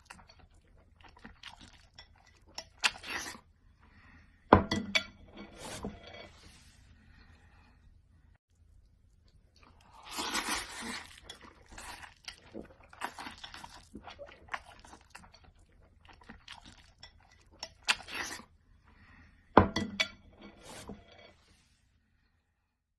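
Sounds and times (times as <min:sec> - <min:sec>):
crunching while eating: 0:09.2 - 0:18.5
dishes and cutlery clinking: 0:19.6 - 0:21.4.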